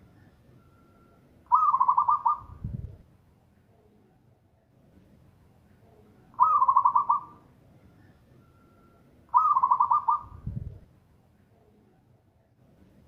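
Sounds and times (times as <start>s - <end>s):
dove cooing: 1.5s - 2.6s, 6.4s - 7.4s, 9.3s - 10.4s.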